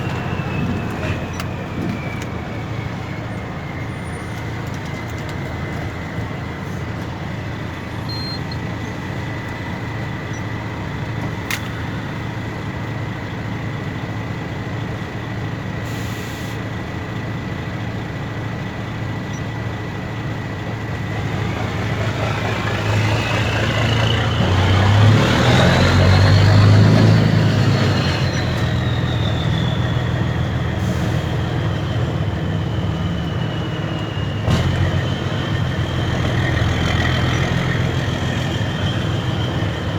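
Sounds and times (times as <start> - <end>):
high turbo whistle: 0.0 - 6.9, 21.0 - 39.9
diesel truck engine revving: 0.0 - 15.9, 16.7 - 39.9.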